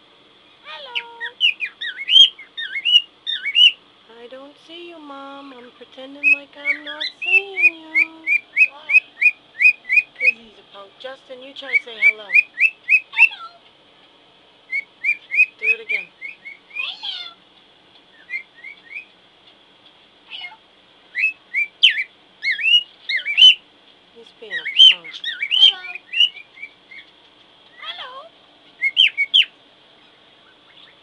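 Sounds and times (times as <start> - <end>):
cockatiel whistling chirps: 1.4 - 3.8, 8.0 - 10.3, 11.7 - 13.5, 14.7 - 17.0, 18.1 - 19.1, 21.1 - 23.6, 24.6 - 27.1, 28.8 - 29.5.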